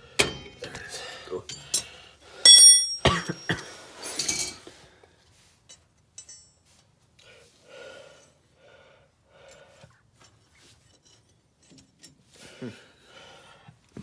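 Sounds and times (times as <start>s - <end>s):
metal tools clinking and clattering: 0.2s - 4.8s, 5.6s - 6.8s.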